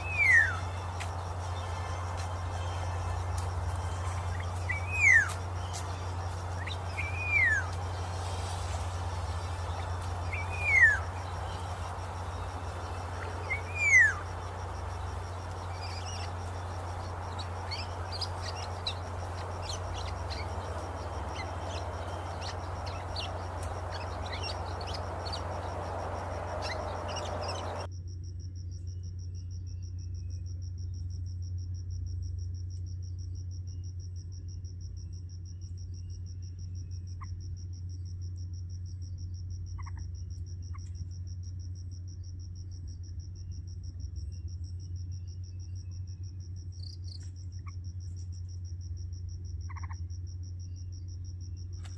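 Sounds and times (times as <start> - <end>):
background hiss: 0.0 - 27.9
low hum: 0.0 - 28.5.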